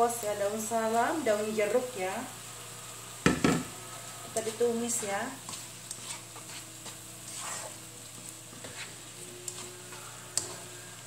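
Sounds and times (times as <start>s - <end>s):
paste sizzling in a wok: 0.0s - 11.0s
spatula scraping: 4.4s - 11.0s.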